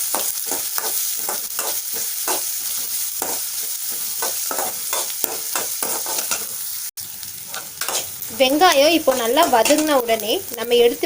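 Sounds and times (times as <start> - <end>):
onion sizzling in hot oil: 0.0 - 11.0
spatula scraping pan: 0.1 - 6.6, 7.5 - 8.2, 9.1 - 10.2.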